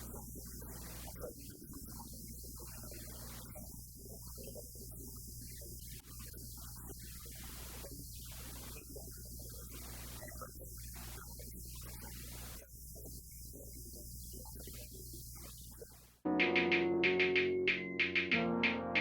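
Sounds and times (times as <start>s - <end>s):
faint low hum with hiss: 0.0s - 16.2s
loud music with a beat: 16.3s - 19.0s.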